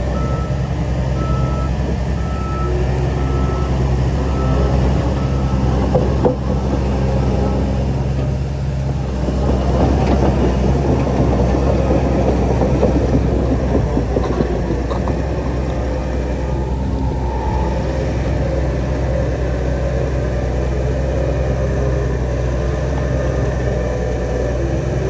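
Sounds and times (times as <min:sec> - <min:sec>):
diesel machinery engine drone: 0:00.0 - 0:25.0
dense rattling clatter: 0:03.2 - 0:19.7.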